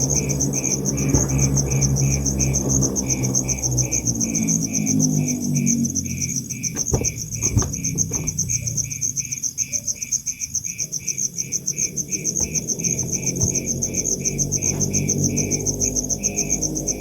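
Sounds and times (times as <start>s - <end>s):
faint knocks: 0.0s - 3.4s, 6.6s - 9.0s, 12.3s - 15.5s
high fast insect chirp: 0.0s - 17.0s
low pulsing insect chirp: 0.0s - 17.0s.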